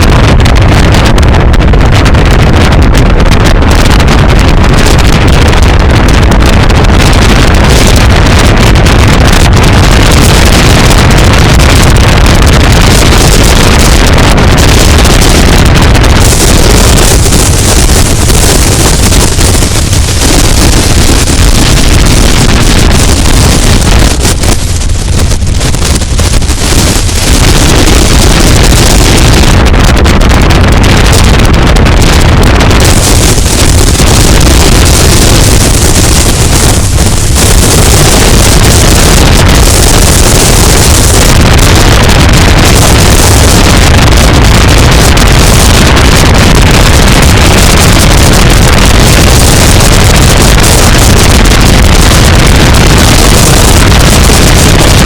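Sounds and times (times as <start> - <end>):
road and tyre noise: 0.0 - 55.0
wind buffeting camera: 0.0 - 55.0.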